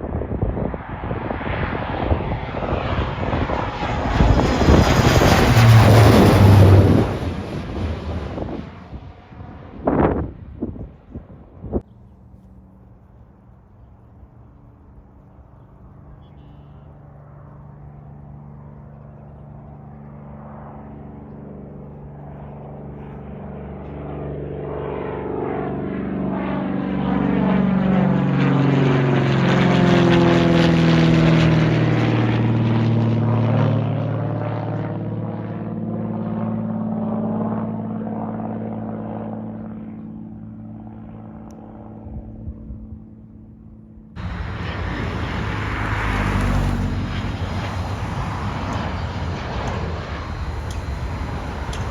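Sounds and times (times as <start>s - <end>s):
aircraft flying overhead: 0.0s - 51.9s.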